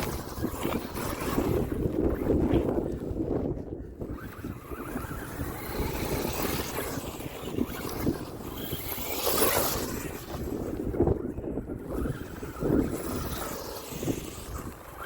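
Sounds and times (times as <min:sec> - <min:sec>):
toy truck driving over rough ground: 0:00.0 - 0:15.0
wind buffeting microphone: 0:00.0 - 0:15.0.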